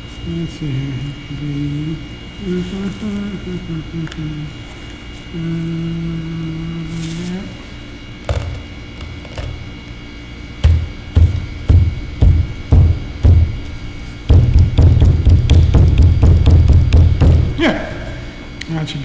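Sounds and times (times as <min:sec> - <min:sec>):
drum beats: 0:10.6 - 0:17.9.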